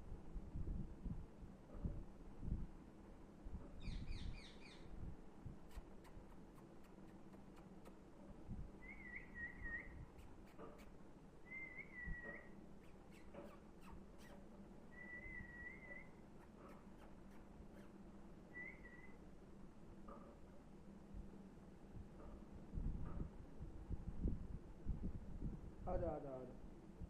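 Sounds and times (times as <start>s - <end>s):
parrot chirping: 3.8s - 4.9s, 8.8s - 19.2s
parrot wavering whistles: 8.8s - 10.0s, 11.4s - 16.2s, 18.5s - 19.2s.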